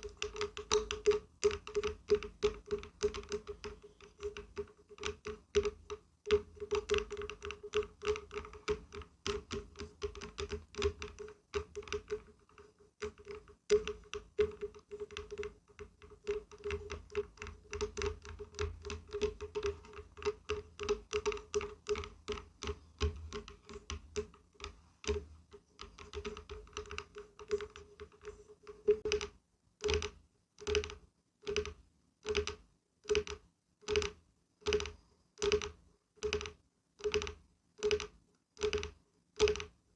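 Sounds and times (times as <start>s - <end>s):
tapping on wood: 0.0s - 30.1s.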